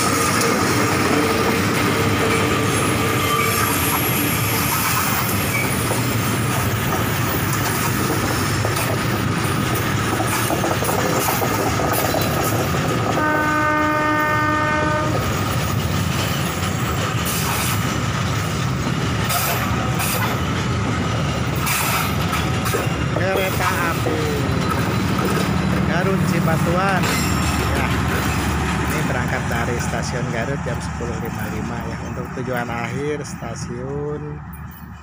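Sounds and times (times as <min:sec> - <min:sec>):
train wheels rumbling on rails: 0:00.0 - 0:35.0
train horn: 0:13.1 - 0:15.2.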